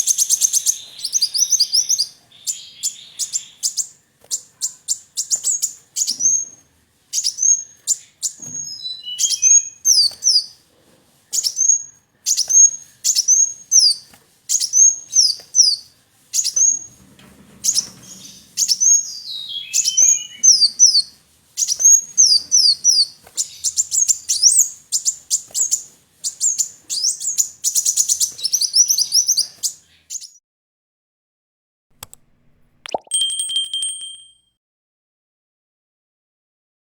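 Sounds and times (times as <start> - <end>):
sunbird chirping and twittering: 0.0 - 10.6, 11.3 - 16.9, 17.6 - 30.4.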